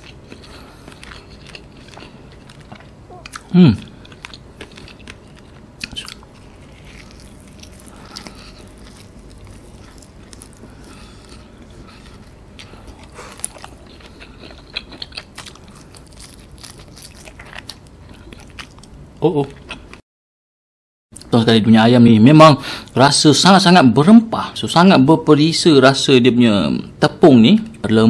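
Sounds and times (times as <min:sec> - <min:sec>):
man chewing crunchy food: 0:00.0 - 0:20.0.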